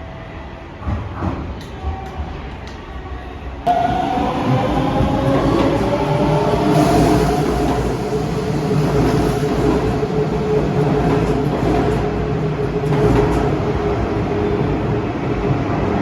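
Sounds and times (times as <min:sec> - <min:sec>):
electric train rumble: 0:03.7 - 0:16.0.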